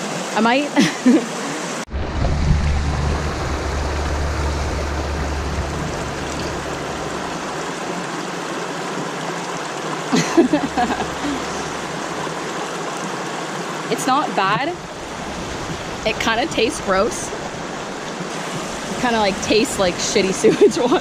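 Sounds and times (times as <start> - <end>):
stream water rushing over rocks: 0.0 - 21.0
low rumble: 1.9 - 8.1, 10.5 - 12.5.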